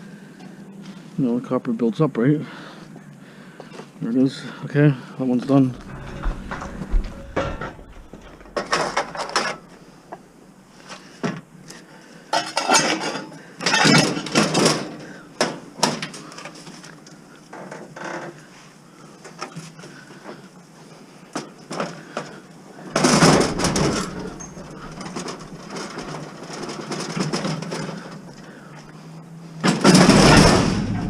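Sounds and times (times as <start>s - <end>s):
metal scrap parts clattering: 5.8s - 9.7s, 23.0s - 28.0s, 29.7s - 31.0s.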